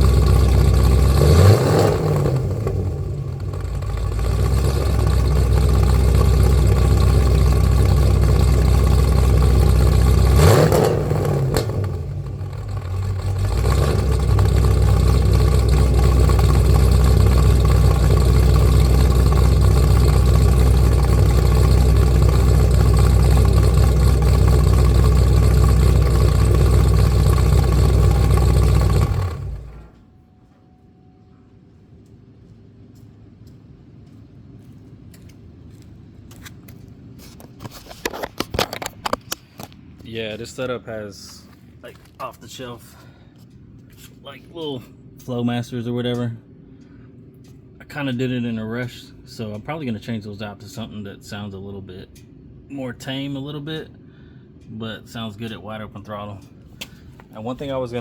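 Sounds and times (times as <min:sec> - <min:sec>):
car engine revving and idling: 0:00.0 - 0:30.0.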